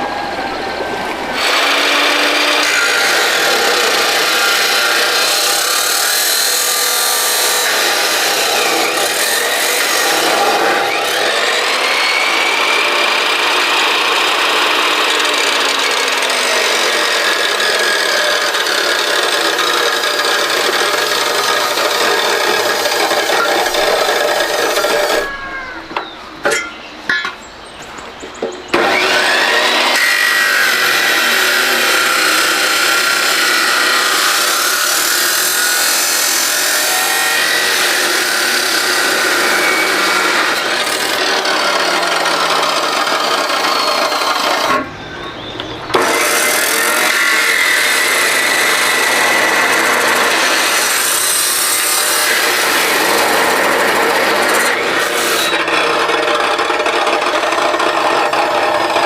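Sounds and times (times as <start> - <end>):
power tool grinding: 1.3 - 25.4, 28.7 - 59.0.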